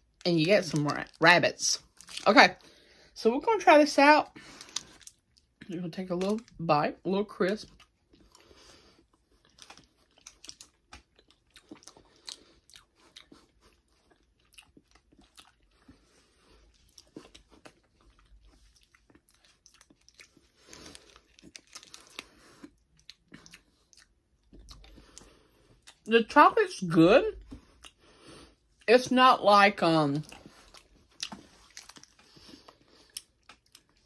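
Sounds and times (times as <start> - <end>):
person chewing crisp snack: 1.8 - 2.8, 4.4 - 6.6, 7.6 - 26.1, 27.4 - 28.9, 30.2 - 34.0.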